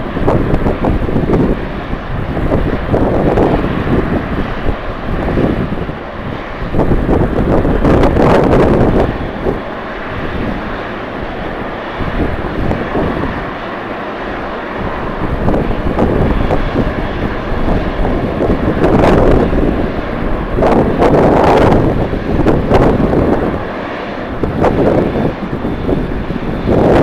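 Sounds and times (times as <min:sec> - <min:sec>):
jet airliner engines running: 0:00.0 - 0:27.0
wind buffeting microphone: 0:00.0 - 0:27.0.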